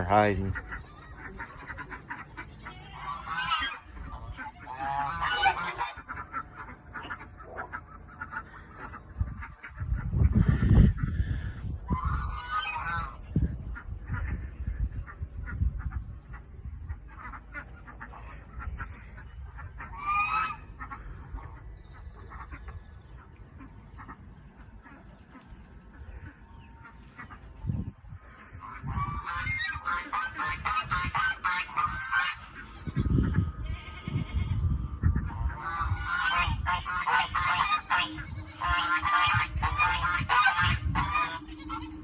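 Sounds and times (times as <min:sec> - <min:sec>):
geese honking: 0:00.0 - 0:42.0
poultry calling: 0:00.0 - 0:42.0
honking call: 0:35.6 - 0:42.0.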